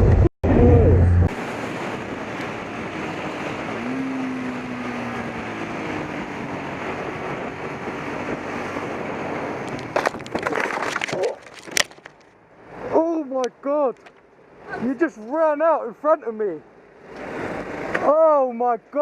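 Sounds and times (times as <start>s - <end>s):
wind rush on microphone: 0.0s - 11.3s.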